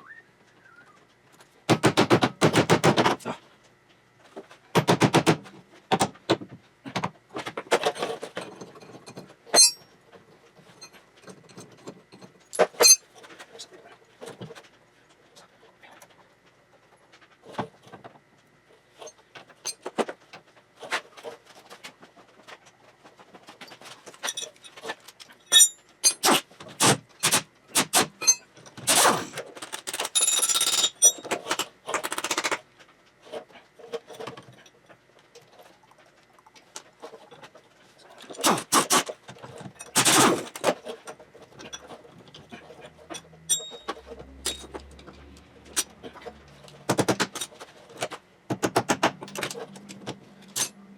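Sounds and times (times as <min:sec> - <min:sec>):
metal tools clinking and rattling: 0:07.8 - 0:09.8, 0:10.8 - 0:13.0, 0:24.1 - 0:24.9, 0:25.5 - 0:26.3, 0:28.2 - 0:31.7, 0:43.1 - 0:44.9, 0:50.4 - 0:50.8.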